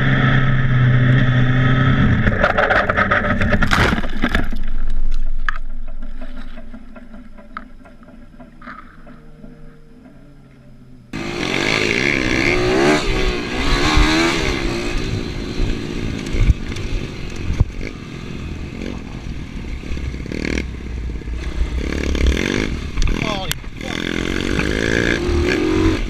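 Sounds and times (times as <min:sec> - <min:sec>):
motorcycle engine revving: 0:11.1 - 0:26.0.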